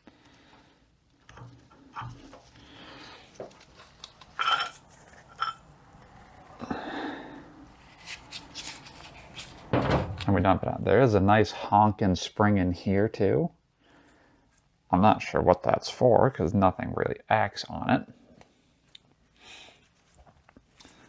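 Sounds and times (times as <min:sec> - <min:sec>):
metal parts clicking and scraping: 0:04.0 - 0:05.6.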